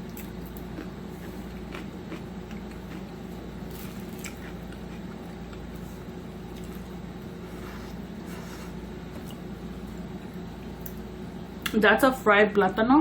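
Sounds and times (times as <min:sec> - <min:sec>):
chewing and mouth sounds: 0:00.0 - 0:05.8, 0:06.4 - 0:07.0
low electrical hum: 0:00.0 - 0:13.0.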